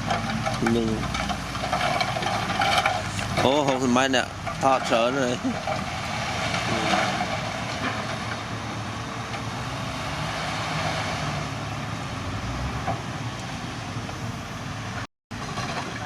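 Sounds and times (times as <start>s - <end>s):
construction machine engine running: 0.0s - 10.8s.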